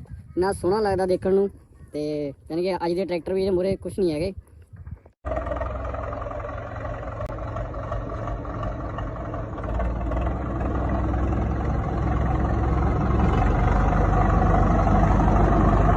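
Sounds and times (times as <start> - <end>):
tractor diesel engine running: 5.2 - 15.9.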